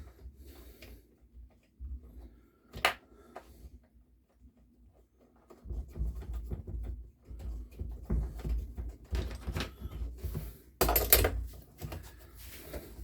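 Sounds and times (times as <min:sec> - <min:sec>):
tools knocking and clicking: 0:10.8 - 0:11.4.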